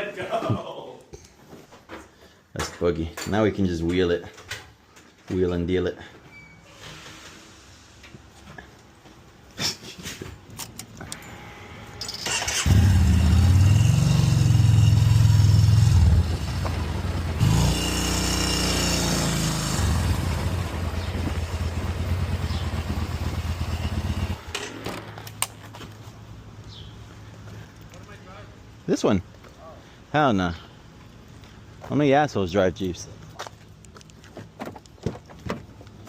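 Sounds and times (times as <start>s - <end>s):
vehicle engine running: 12.7s - 24.5s.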